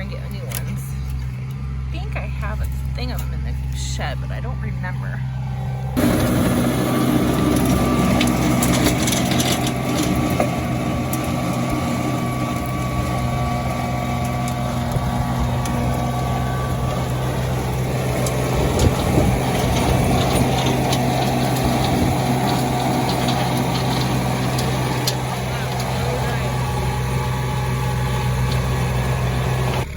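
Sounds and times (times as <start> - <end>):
tractor engine running under load: 0.0 - 29.9
rotary tiller in soil: 6.0 - 29.9.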